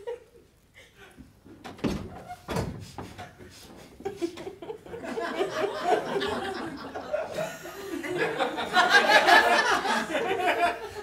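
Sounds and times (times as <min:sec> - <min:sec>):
audience laughing: 0:04.0 - 0:11.0.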